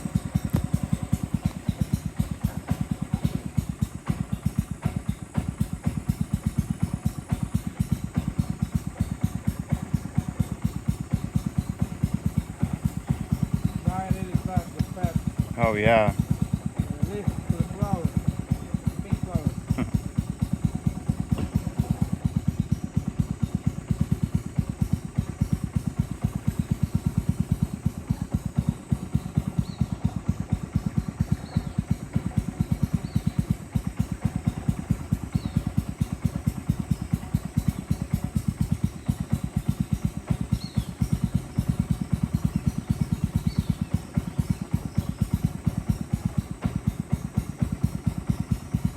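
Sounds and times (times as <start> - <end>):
boat engine chugging: 0.0 - 48.9.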